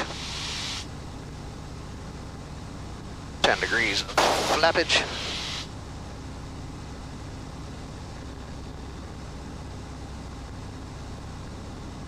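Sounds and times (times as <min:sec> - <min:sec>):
light aircraft engine running: 0:00.0 - 0:12.0
rush of air in cabin: 0:04.1 - 0:05.8.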